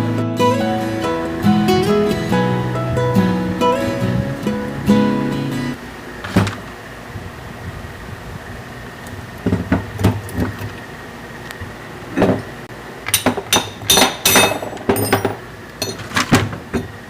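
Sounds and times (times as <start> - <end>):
acoustic guitar music: 0.0 - 5.8
tools and metal parts clinking: 13.1 - 17.0.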